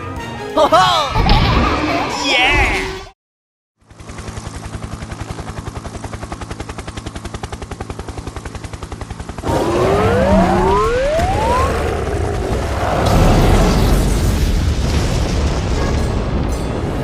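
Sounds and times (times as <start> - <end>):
cartoon siren-like pitch glides: 9.4 - 12.2.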